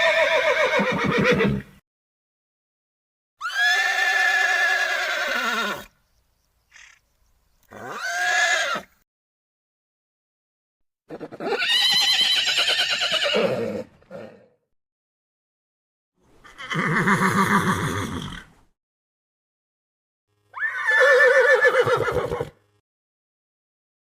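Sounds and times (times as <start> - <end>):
horse whinnying: 0.0 - 1.7, 3.4 - 5.9, 7.7 - 8.9, 11.1 - 14.6, 16.4 - 18.6, 20.5 - 22.6.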